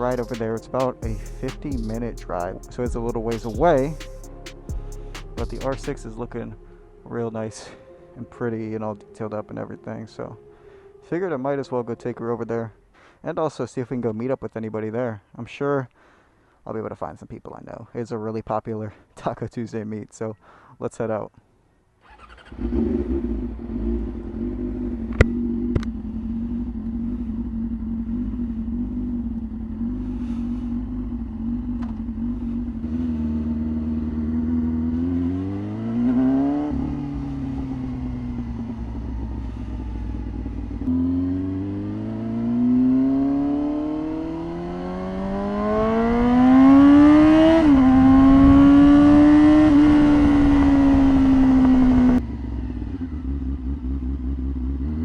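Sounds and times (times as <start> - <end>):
motorcycle engine revving: 0.0 - 6.4, 22.1 - 55.0.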